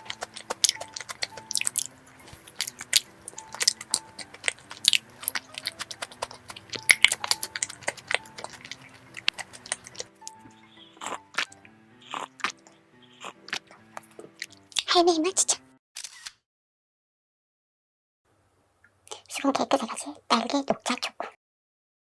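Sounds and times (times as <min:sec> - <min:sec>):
biting and chewing: 0:00.0 - 0:14.9
quiet background music: 0:00.0 - 0:15.8.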